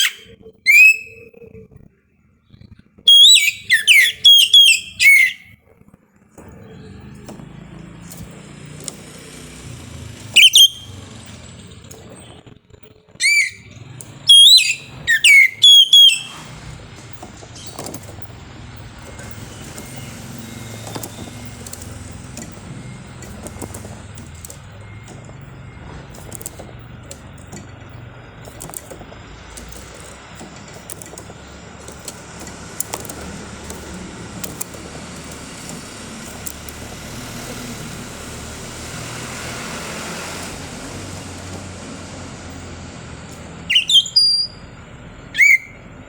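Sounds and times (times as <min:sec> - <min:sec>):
magpie-robin whistled song: 0:00.0 - 0:01.5, 0:03.1 - 0:05.6, 0:10.2 - 0:11.1, 0:13.2 - 0:18.0, 0:43.6 - 0:44.7, 0:45.3 - 0:45.8.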